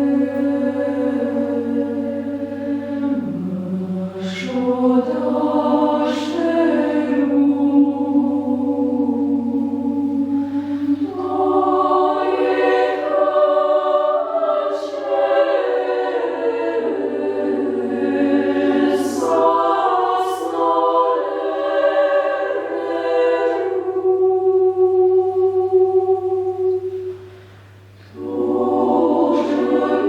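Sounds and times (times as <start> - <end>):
women's choir singing: 0.0 - 27.4, 28.0 - 30.0
faint low hum: 0.0 - 30.0.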